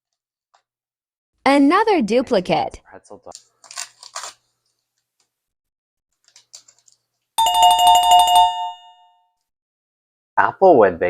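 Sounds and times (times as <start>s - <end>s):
electronic two-tone chime: 7.4s - 9.0s.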